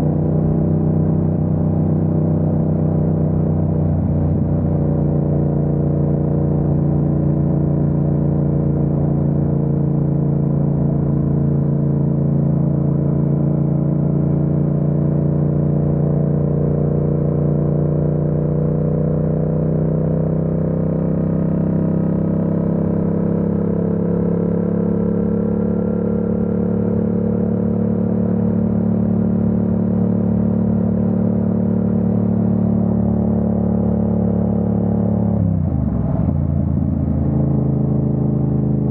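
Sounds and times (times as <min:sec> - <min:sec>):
motorcycle engine cruising: 0:22.7 - 0:38.9.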